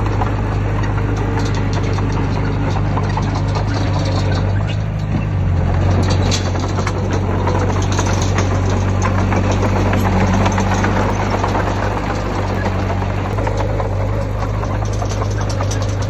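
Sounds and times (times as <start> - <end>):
heavy machinery diesel engine: 0.0 - 16.0
short knocks: 5.8 - 16.0.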